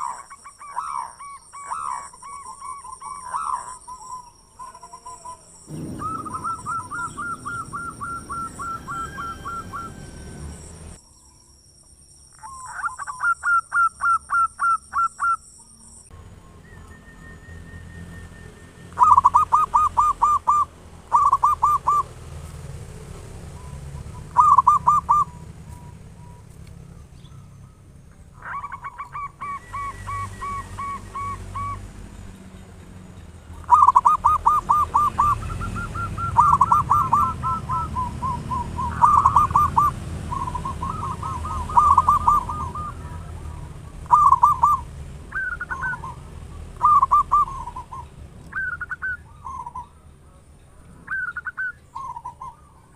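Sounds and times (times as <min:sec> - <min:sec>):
doves cooing: 0:00.0 - 0:11.0, 0:18.8 - 0:32.6, 0:33.5 - 0:50.0
steady low rumble: 0:05.7 - 0:11.0.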